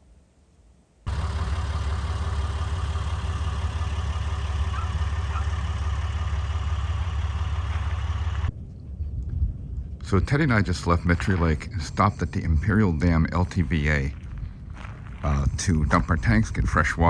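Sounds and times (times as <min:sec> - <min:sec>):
pickup truck engine running: 0:01.1 - 0:08.5.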